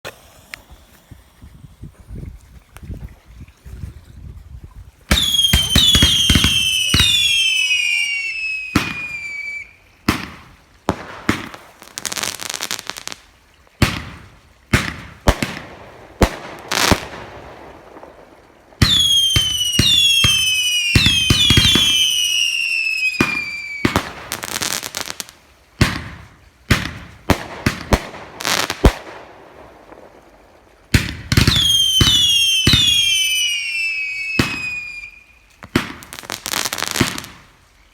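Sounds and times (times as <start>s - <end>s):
firework crackling: 0.0s - 2.0s, 5.1s - 37.6s
firework bangs: 5.1s - 8.0s, 8.7s - 9.4s, 10.0s - 13.2s, 13.8s - 22.4s, 23.0s - 25.2s, 25.8s - 33.6s, 34.3s - 37.5s
whistling firework shots: 5.1s - 11.7s, 18.8s - 24.9s, 30.9s - 37.5s.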